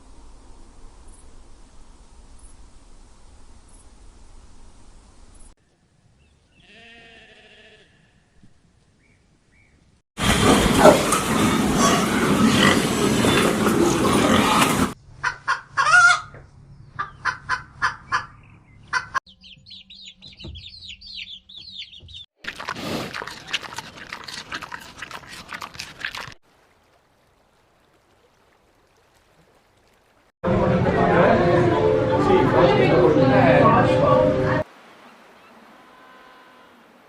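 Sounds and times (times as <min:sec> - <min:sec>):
chickens clucking: 0:10.2 - 0:24.4
high chirping: 0:18.1 - 0:22.3.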